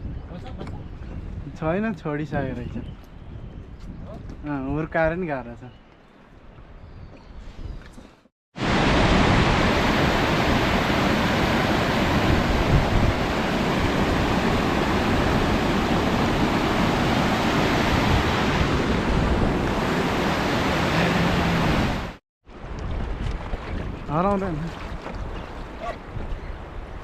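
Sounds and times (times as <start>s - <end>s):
river rapids rushing: 8.6s - 22.2s.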